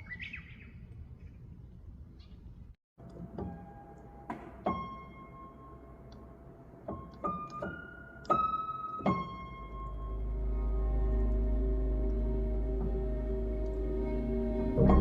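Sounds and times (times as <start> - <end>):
slow piano melody: 3.0 - 15.0
soft ambient music: 3.2 - 15.0.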